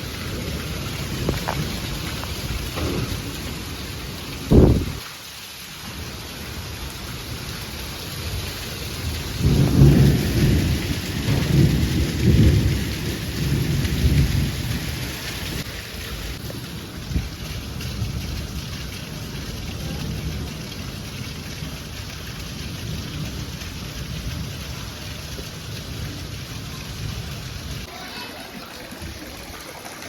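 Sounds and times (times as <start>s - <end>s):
thunder rumbling: 0.0s - 5.0s, 8.3s - 15.7s
heavy rain: 0.0s - 30.0s
thunder clap: 0.1s - 5.0s, 9.2s - 15.6s.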